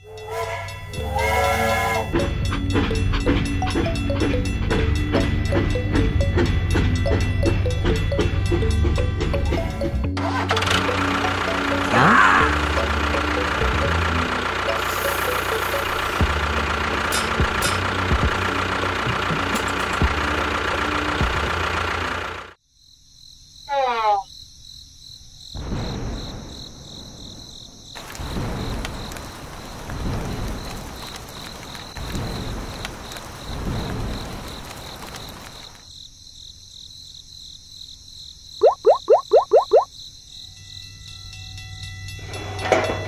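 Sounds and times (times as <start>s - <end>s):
insects chirring: 22.6s - 41.8s.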